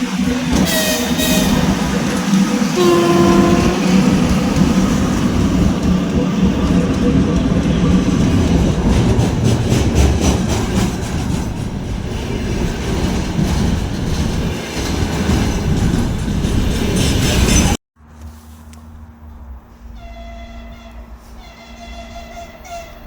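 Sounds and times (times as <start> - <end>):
train passing at speed: 0.0 - 17.8.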